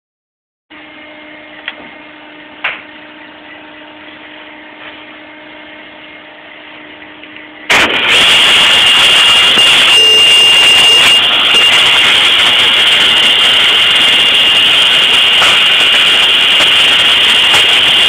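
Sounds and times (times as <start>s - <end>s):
table saw whining: 7.7s - 18.0s.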